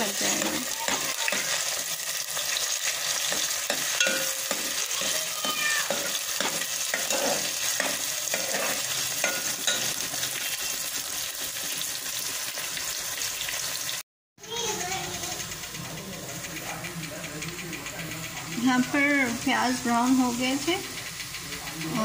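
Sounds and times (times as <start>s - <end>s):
paste sizzling in hot oil: 0.0s - 14.0s, 18.5s - 22.0s
metal ladle scraping a pot: 2.4s - 10.1s.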